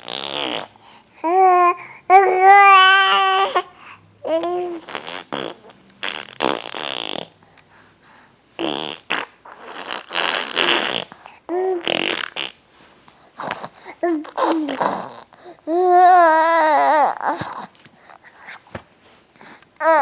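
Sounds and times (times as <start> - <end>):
baby blowing raspberries: 0.0 - 1.0, 4.4 - 7.4, 8.6 - 12.6, 17.2 - 18.8.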